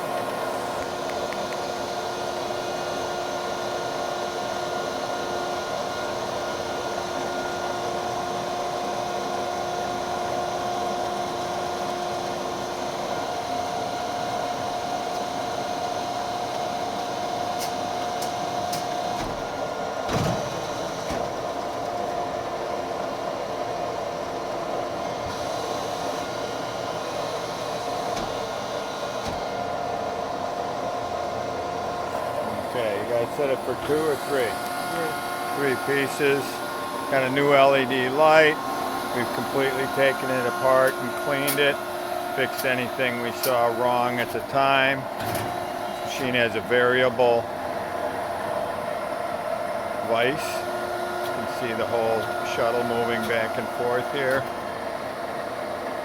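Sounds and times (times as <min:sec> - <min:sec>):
bandsaw cutting wood: 0:32.8 - 0:44.9, 0:50.0 - 0:54.6.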